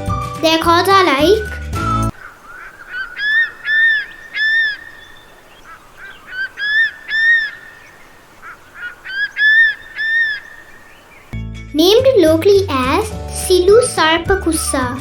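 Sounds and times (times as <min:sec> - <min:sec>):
eagle calling: 0:00.4 - 0:11.4.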